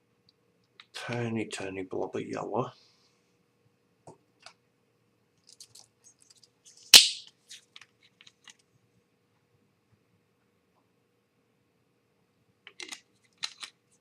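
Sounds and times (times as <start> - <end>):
paint supplies clicking and scraping: 5.4 - 6.6, 12.7 - 14.0.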